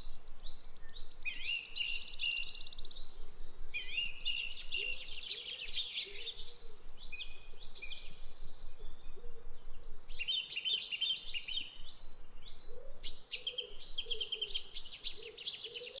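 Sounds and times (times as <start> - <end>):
small birds chirping: 0.0 - 16.0
fainter lower bird call: 3.8 - 16.0.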